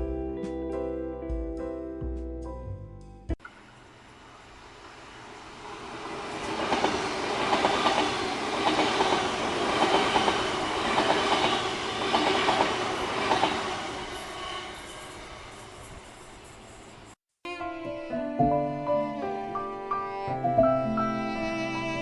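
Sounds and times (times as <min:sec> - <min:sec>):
train wheels clacking on rails: 0:05.7 - 0:15.2.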